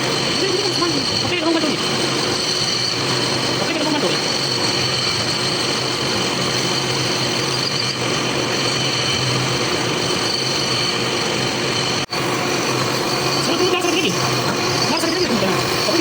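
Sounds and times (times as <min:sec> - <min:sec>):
workshop machine motor whining: 0:00.0 - 0:16.0.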